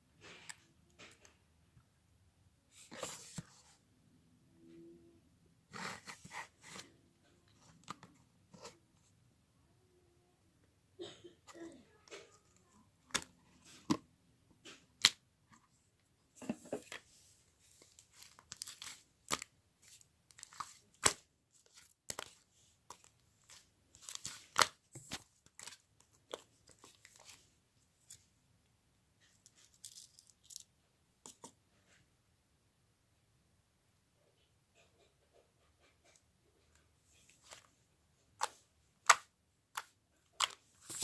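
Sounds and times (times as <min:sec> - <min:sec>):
tearing and crinkling rustles: 0:40.4 - 0:41.0.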